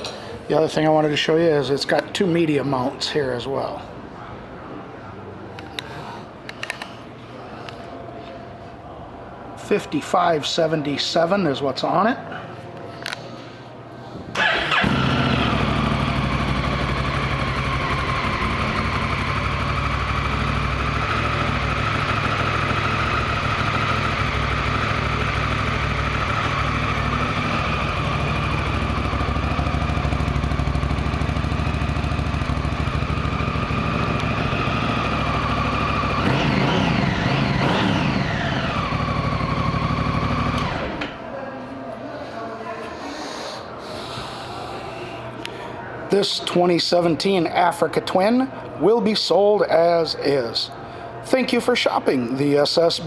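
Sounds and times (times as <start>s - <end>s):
motorcycle engine starting and idling: 14.3s - 41.4s.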